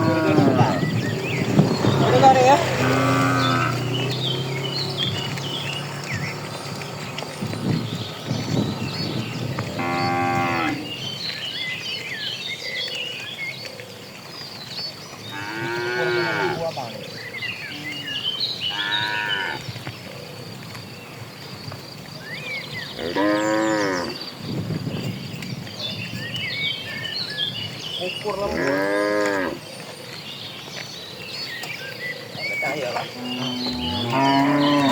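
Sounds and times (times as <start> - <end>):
cattle mooing: 0.0 - 7.0, 9.6 - 10.9, 15.3 - 16.7, 18.7 - 19.6, 23.0 - 24.2, 28.4 - 29.6, 32.7 - 34.9
small birds twittering: 0.0 - 34.9.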